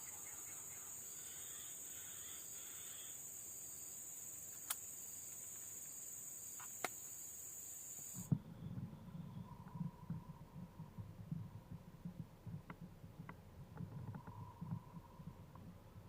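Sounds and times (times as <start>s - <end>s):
insects shrilling: 0.0s - 8.3s
faint chirps: 0.0s - 11.0s, 13.9s - 15.6s
low rumbling: 8.3s - 16.0s.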